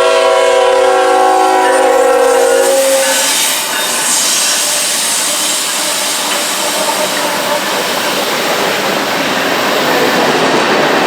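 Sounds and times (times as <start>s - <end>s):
train air horn chord: 0.0s - 4.5s
freight train running past: 0.0s - 11.0s.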